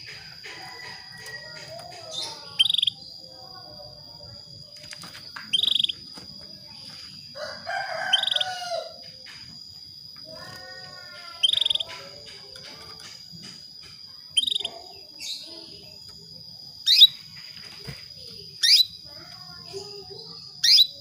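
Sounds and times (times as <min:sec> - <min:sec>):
canary trilled calls: 0:00.7 - 0:03.2, 0:05.5 - 0:06.0, 0:07.7 - 0:08.9, 0:10.6 - 0:13.1, 0:14.4 - 0:15.4, 0:16.8 - 0:17.2, 0:18.6 - 0:19.0, 0:20.6 - 0:21.0.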